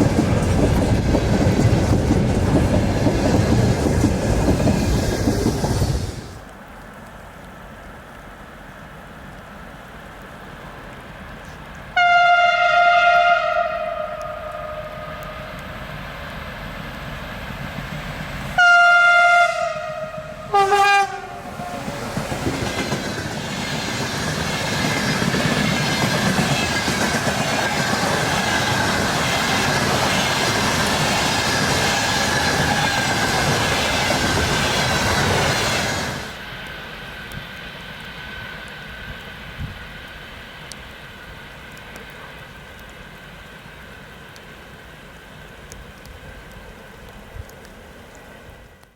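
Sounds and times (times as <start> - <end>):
train running noise: 0.0 - 6.5, 10.4 - 48.9
wheels clacking on rails: 0.0 - 6.5, 20.0 - 43.4
locomotive horn blasts: 12.0 - 15.5, 18.6 - 21.8.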